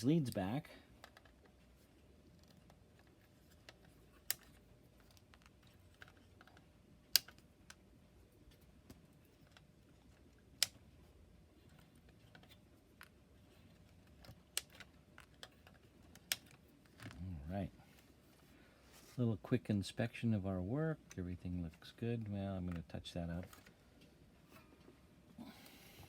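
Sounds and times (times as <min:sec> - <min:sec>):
handling ticks: 0:02.2 - 0:07.8.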